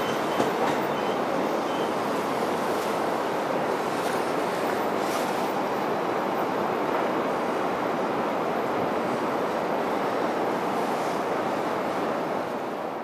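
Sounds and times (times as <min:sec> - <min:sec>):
electric train rumbling away: 0:00.0 - 0:03.8.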